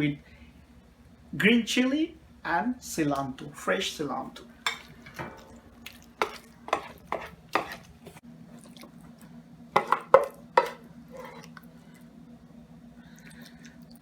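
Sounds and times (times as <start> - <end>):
steady low hum: 0.0 - 14.0
spoon scraping metal pan: 6.2 - 8.2, 9.8 - 11.5.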